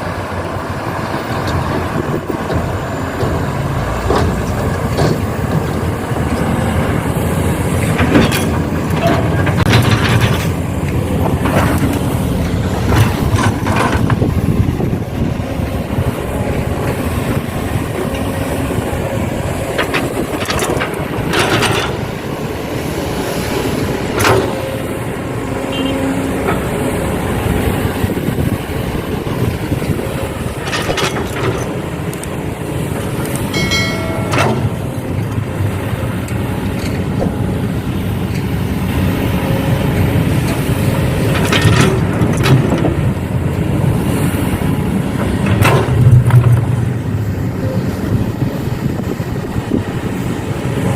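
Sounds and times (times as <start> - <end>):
heavy diesel machinery rumbling: 0.0 - 50.9
sharp metal knocks and clanks: 33.5 - 35.4.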